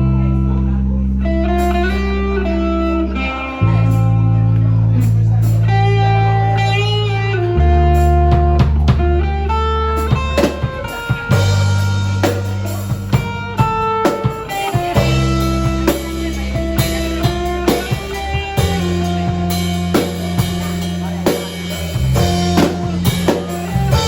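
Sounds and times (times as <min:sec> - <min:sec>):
deep bass line: 0:00.0 - 0:24.0
guitar playing: 0:00.0 - 0:24.0
drum kit beat: 0:07.6 - 0:24.0.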